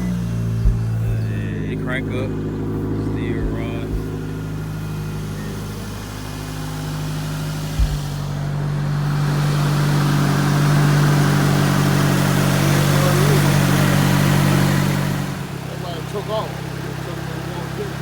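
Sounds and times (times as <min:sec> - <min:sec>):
car engine running: 0:00.0 - 0:18.0
thump: 0:07.7 - 0:08.3.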